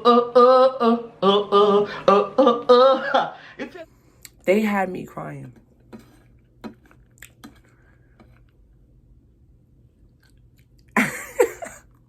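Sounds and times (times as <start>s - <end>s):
person chewing: 5.8s - 8.9s, 10.0s - 11.0s.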